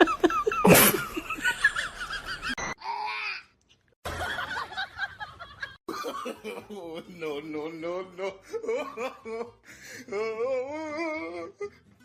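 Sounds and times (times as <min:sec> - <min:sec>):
people laughing: 0:00.0 - 0:02.6, 0:04.1 - 0:07.4.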